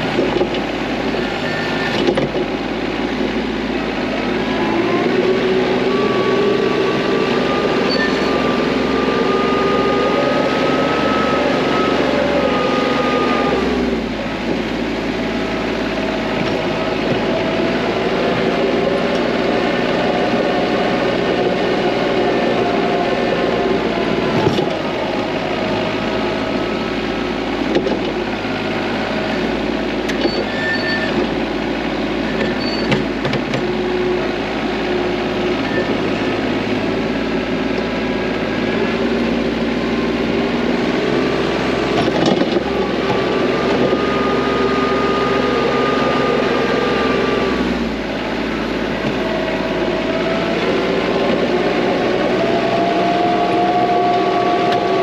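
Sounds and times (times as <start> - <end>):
tractor diesel engine running: 0.0 - 55.0
short clunks: 27.6 - 28.2.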